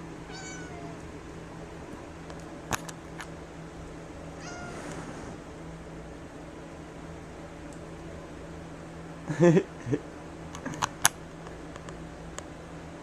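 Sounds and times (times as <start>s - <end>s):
cat meowing: 0.3s - 1.0s, 4.4s - 4.8s.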